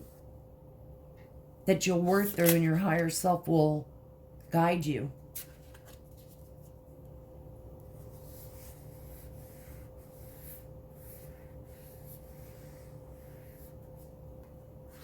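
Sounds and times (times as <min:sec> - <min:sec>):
paper rustling: 0:02.1 - 0:03.2, 0:05.3 - 0:06.9.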